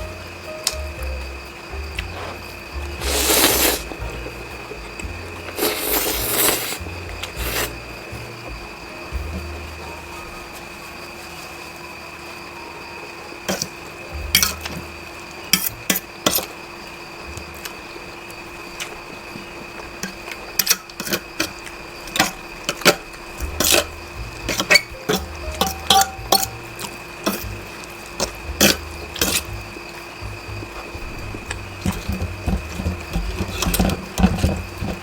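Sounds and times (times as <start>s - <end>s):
utensils clinking against bowl: 13.5s - 14.9s, 15.5s - 16.6s, 20.0s - 29.5s, 30.8s - 35.0s.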